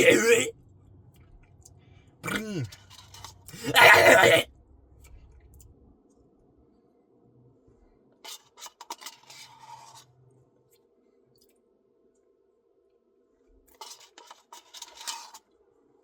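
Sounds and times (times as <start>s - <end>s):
spoon scraping a cup: 2.6s - 3.4s, 8.3s - 10.1s, 13.8s - 15.4s.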